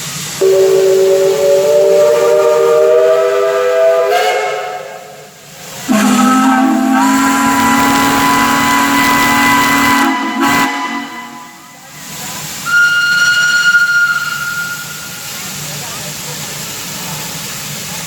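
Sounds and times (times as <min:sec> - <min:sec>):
multi-tone whistle blasts: 0:00.4 - 0:05.2, 0:05.9 - 0:11.7, 0:12.6 - 0:15.3.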